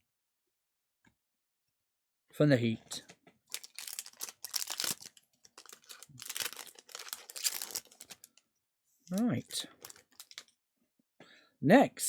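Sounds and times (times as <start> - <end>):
foil wrapper crinkling and tearing: 3.5 - 8.4, 9.1 - 10.5.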